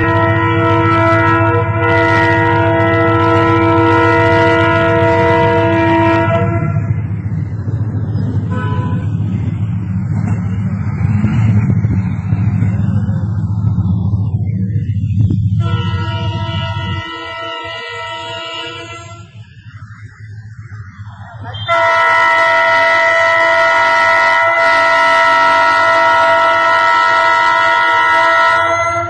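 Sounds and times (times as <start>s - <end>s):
train horn blast: 0.0s - 7.1s, 8.4s - 9.2s, 15.6s - 19.4s, 21.5s - 29.0s
passing train rumble: 0.0s - 29.0s.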